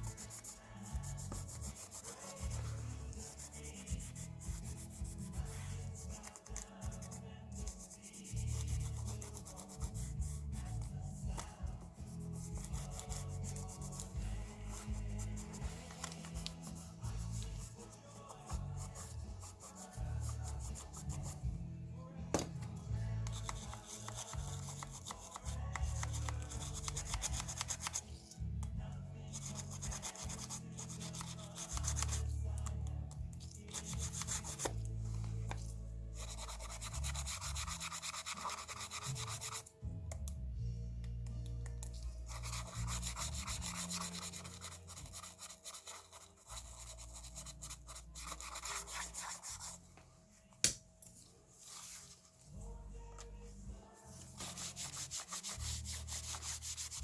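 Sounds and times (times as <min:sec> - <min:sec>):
faint music with bass line: 0:00.0 - 0:57.0
scratchy handling noise: 0:51.0 - 0:52.4.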